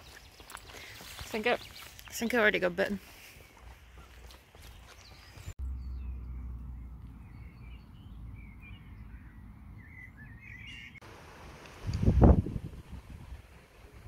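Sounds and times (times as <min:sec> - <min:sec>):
low wind rumble: 0:05.7 - 0:14.0
songbird warbling: 0:07.2 - 0:11.0
wind gust buffeting microphone: 0:11.8 - 0:14.0.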